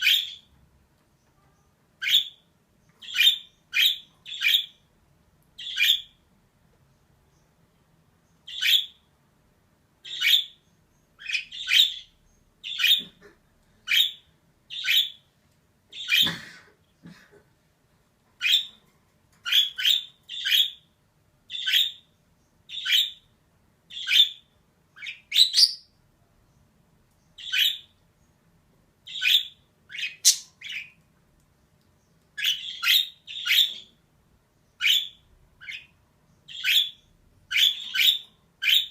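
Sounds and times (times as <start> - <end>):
budgerigar chirping: 0.0 - 0.5, 2.0 - 2.4, 3.0 - 4.8, 5.6 - 6.2, 8.4 - 9.0, 10.0 - 13.2, 13.9 - 15.2, 18.4 - 18.8, 19.4 - 20.9, 21.5 - 22.1, 22.7 - 23.3, 23.9 - 26.0, 27.4 - 28.0, 29.0 - 31.0, 32.4 - 34.0, 34.8 - 38.9.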